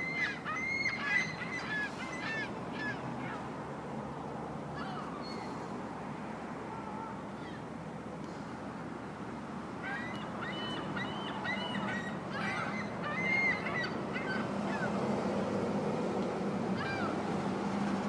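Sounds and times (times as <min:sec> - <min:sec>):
gulls calling harshly: 0:00.0 - 0:03.6, 0:09.8 - 0:15.4, 0:16.7 - 0:17.8.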